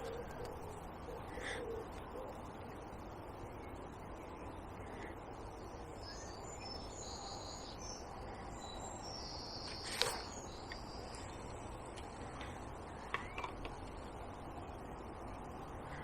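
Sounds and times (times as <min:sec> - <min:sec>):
low background noise: 0:00.0 - 0:16.0
songbird notes: 0:00.0 - 0:16.0.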